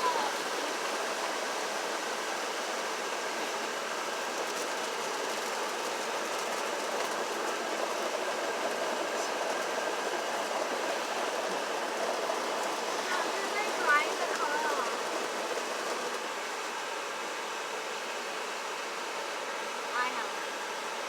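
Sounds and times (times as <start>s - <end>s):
car wash water and machinery rushing: 0.0s - 21.0s.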